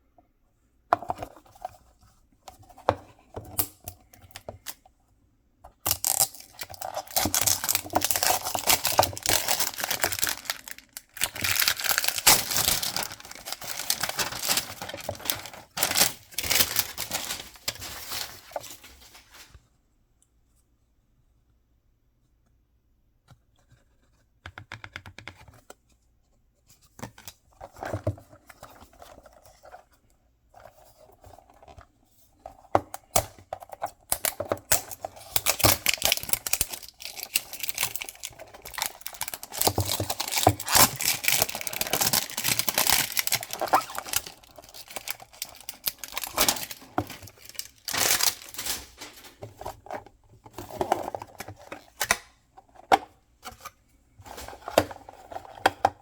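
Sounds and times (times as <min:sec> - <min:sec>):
packaging tearing and crinkling: 0:05.9 - 0:19.5, 0:34.1 - 0:50.0.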